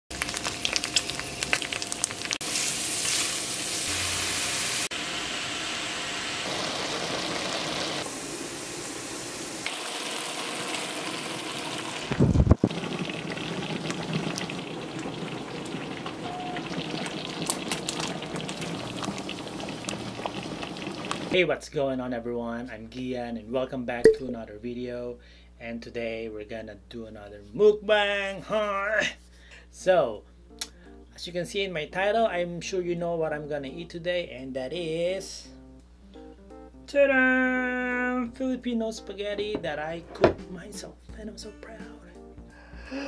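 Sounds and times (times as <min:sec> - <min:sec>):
garlic sizzling in oil: 0:00.1 - 0:21.4.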